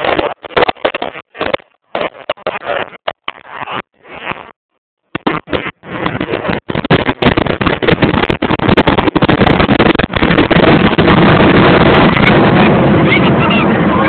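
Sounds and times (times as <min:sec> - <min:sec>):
loud jet engine roar: 0:09.7 - 0:14.0.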